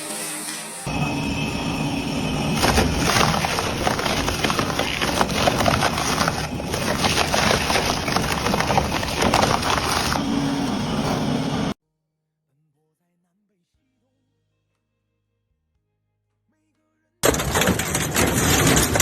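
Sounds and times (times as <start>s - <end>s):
machine low hum: 0.9s - 11.8s
metal shredder crunching scrap: 2.5s - 11.8s, 17.2s - 19.0s.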